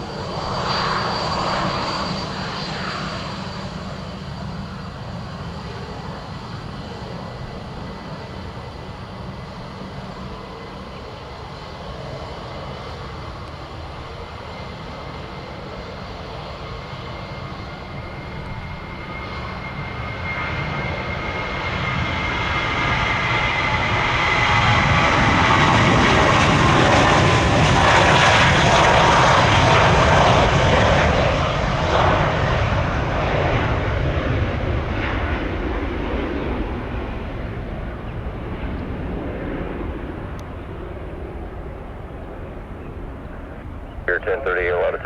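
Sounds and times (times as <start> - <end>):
jet airliner passing by: 0.0 - 45.0.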